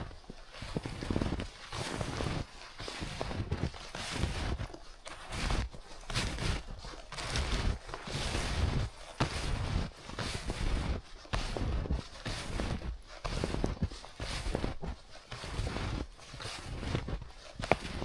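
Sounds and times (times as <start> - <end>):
snowshoes crunching through snow: 0.0 - 18.0.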